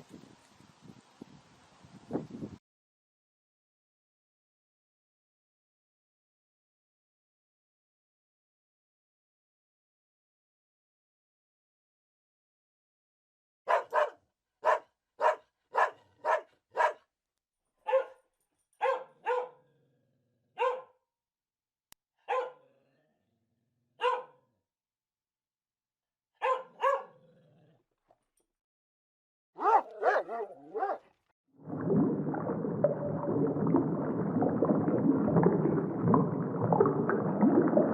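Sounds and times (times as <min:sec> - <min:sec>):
dog barking: 0:13.7 - 0:17.0, 0:17.8 - 0:18.2, 0:18.8 - 0:19.7, 0:20.6 - 0:21.0, 0:22.2 - 0:22.7, 0:24.0 - 0:24.5, 0:26.4 - 0:27.3, 0:29.6 - 0:31.1.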